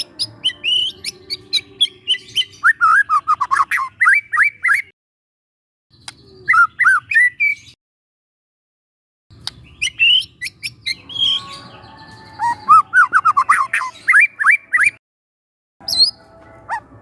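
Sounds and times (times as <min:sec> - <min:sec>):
bird singing whistled notes: 0:00.0 - 0:04.9, 0:05.9 - 0:07.8, 0:09.6 - 0:15.0, 0:15.8 - 0:16.8.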